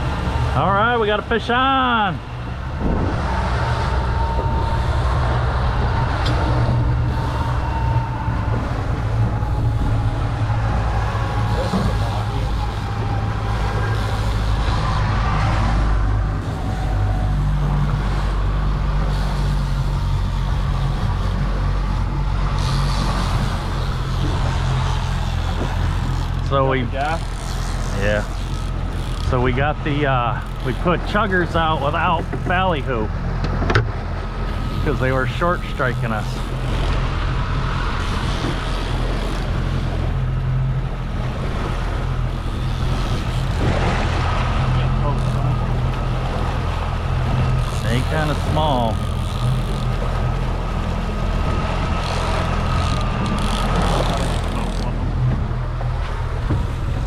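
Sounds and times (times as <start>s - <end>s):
boat engine running: 0.0s - 57.0s
water rushing: 0.0s - 57.0s
wind: 0.0s - 57.0s
wind rushing: 2.2s - 18.6s.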